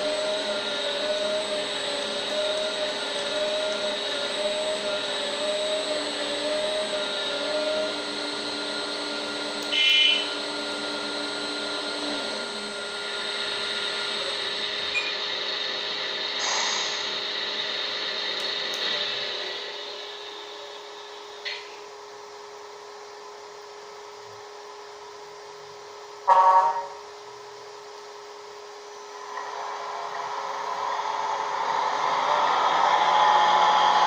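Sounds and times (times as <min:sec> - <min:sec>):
electric pump and motors whining: 0:00.0 - 0:34.0
brief high squeal: 0:09.7 - 0:10.4.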